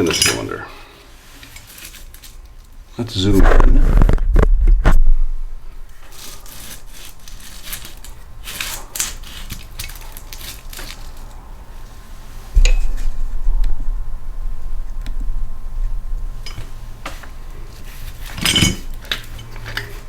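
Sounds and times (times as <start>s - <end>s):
low rumble of handling: 3.0s - 8.5s, 11.0s - 20.0s
scratchy rubbing: 3.1s - 11.1s.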